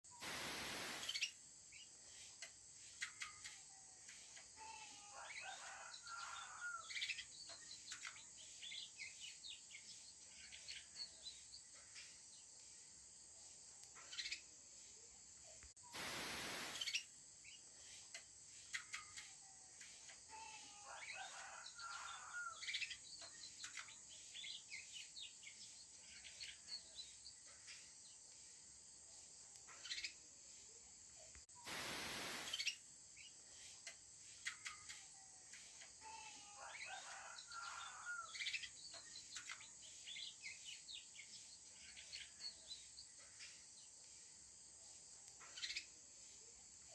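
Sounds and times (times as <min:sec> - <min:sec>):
steady high hiss: 0:00.1 - 0:07.1, 0:07.8 - 0:21.0, 0:27.1 - 0:36.6
loud rush of noise: 0:00.2 - 0:01.1
canary chirping and warbling: 0:20.8 - 0:27.8.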